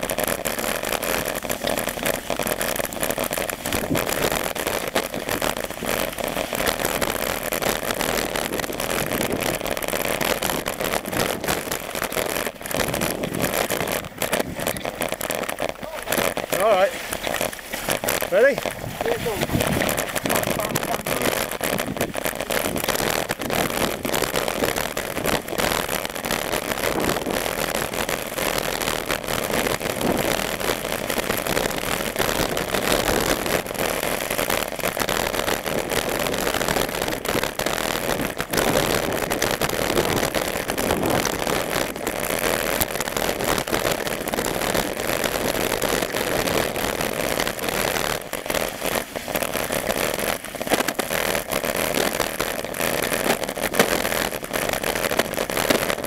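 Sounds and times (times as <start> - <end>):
bike riding noise: 0.0 - 43.8
wind rushing: 18.7 - 20.8.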